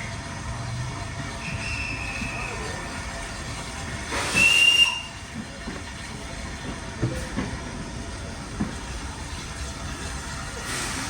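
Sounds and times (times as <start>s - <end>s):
steam hissing: 0.0s - 11.0s
steam train rumbling: 0.0s - 11.0s
high train whistle: 1.4s - 2.6s, 4.2s - 5.2s.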